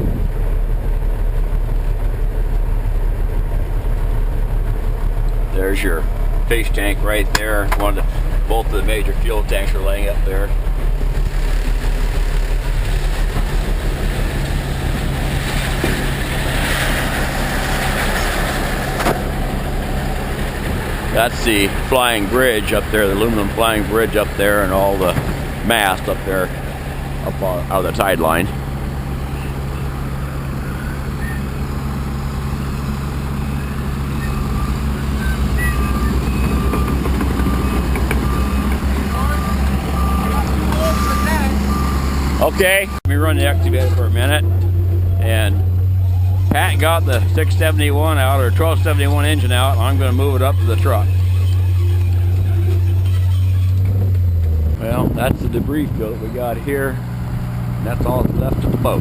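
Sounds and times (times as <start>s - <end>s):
heavy engine idling: 0.0s - 59.0s
reversing alarm beeping: 33.4s - 44.0s.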